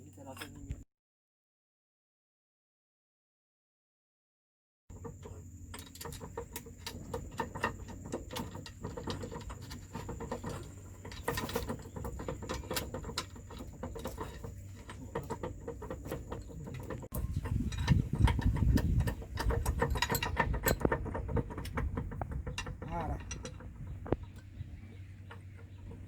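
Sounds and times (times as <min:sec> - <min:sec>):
metal parts and tools clicking: 0:04.9 - 0:24.6.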